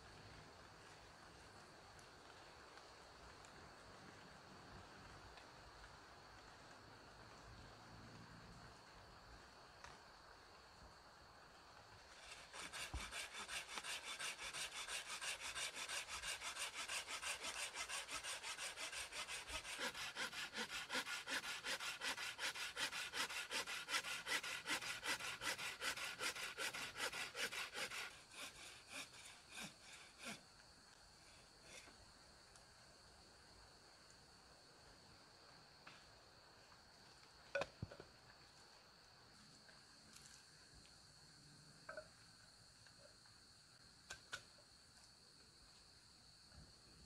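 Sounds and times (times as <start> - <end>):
hand saw cutting wood: 12.1 - 30.4.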